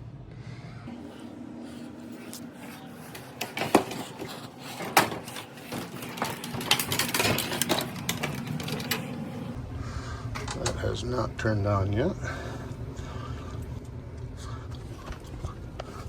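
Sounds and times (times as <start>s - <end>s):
low machine hum: 0.0s - 16.0s
equipment clicking and rattling: 3.1s - 9.6s.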